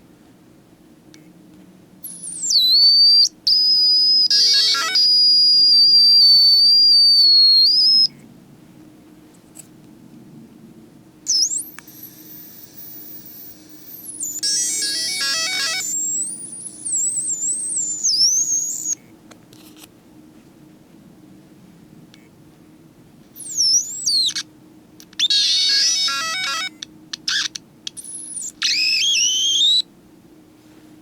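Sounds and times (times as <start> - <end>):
hard drive rapid chirping: 2.0 - 8.1, 11.3 - 19.0, 23.4 - 29.8
hard drive whistling whine: 2.0 - 8.2, 11.3 - 19.0, 23.4 - 29.9.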